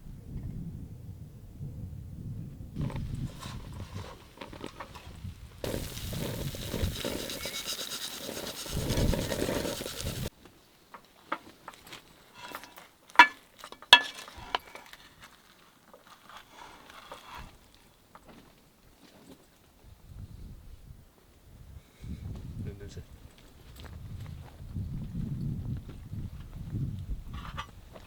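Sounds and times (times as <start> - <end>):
wind buffeting microphone: 0.0 - 10.3, 20.0 - 28.0
utensils clinking on cookware: 13.2 - 13.4.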